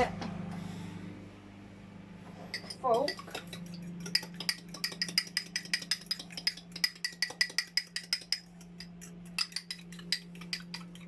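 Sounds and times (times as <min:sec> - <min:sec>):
steady low hum: 0:00.0 - 0:11.0
fork beating eggs in jug: 0:02.5 - 0:11.0.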